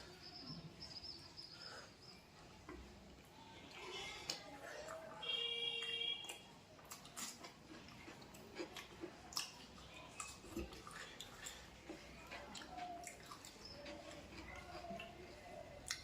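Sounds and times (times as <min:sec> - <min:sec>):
person chewing food: 0:05.8 - 0:16.0.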